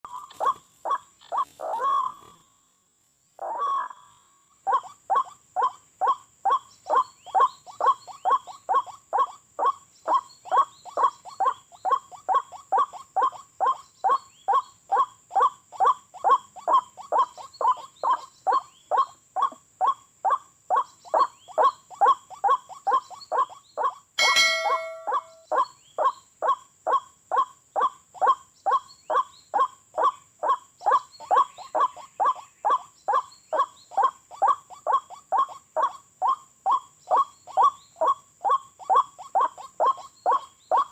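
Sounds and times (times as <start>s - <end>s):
sharp click with ringing tone: 24.2s - 25.4s
waterhen calling: 24.2s - 25.6s.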